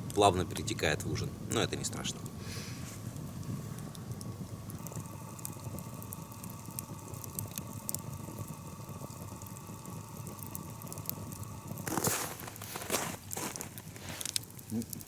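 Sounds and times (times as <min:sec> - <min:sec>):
campfire crackling and popping: 0:00.0 - 0:15.0
water hissing and bubbling in pot: 0:00.0 - 0:15.0
rustling handling noise: 0:11.8 - 0:14.4.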